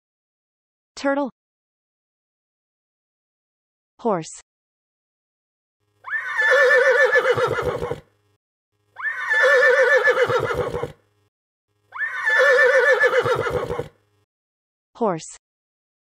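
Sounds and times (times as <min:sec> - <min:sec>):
horse whinnying: 0:06.0 - 0:08.1, 0:09.0 - 0:11.0, 0:11.9 - 0:14.0.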